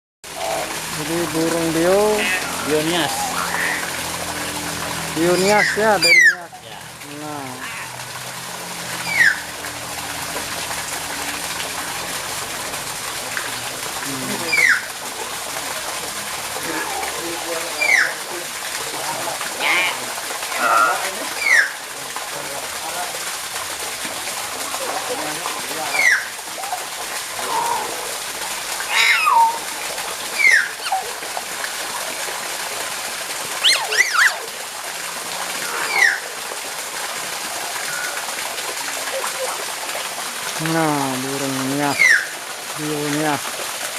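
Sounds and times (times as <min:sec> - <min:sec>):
running water rushing: 0:00.2 - 0:43.9
myna bird calling and whistling: 0:05.4 - 0:06.4, 0:28.9 - 0:29.7, 0:30.4 - 0:31.0, 0:33.6 - 0:34.4, 0:41.9 - 0:42.3.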